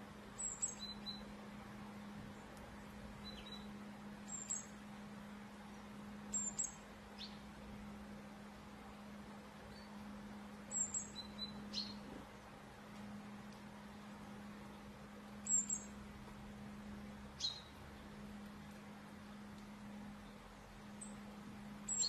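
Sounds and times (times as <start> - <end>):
steady low hum: 0.0 - 22.0
small birds chirping: 0.3 - 5.0, 5.6 - 7.6, 9.5 - 12.2, 13.8 - 16.0, 17.3 - 22.0.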